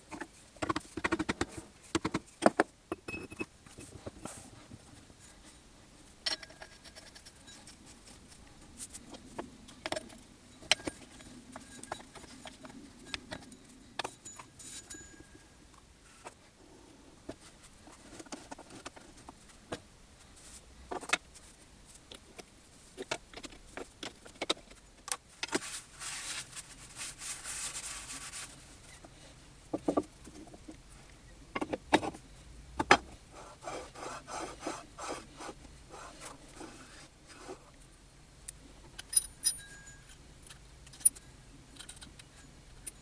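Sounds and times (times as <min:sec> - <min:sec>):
tools clicking and knocking: 0:39.0 - 0:40.2.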